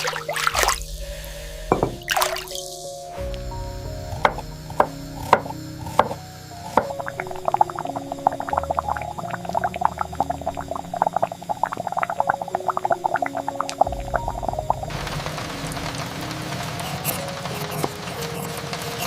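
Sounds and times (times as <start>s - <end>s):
soft piano music: 0.0s - 19.0s.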